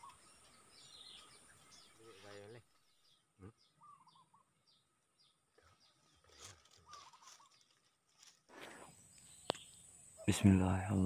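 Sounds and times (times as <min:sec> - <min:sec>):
bird warbling call: 0:00.0 - 0:02.3, 0:03.6 - 0:04.5, 0:06.8 - 0:07.5
high bird chirps: 0:00.0 - 0:06.2.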